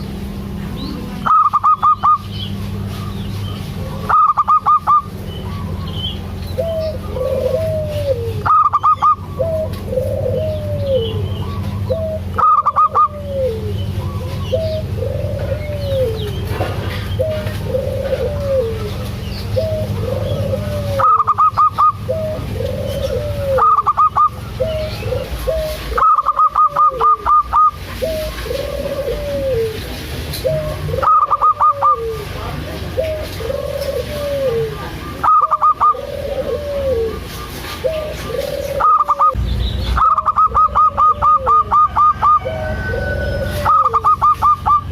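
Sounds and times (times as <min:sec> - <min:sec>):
rapid high bird notes: 0:00.0 - 0:18.0
doves cooing: 0:00.0 - 0:44.9.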